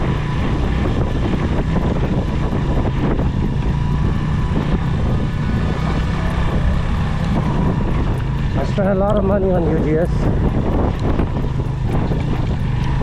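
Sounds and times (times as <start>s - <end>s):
motorcycle engine under load: 0.0s - 13.0s.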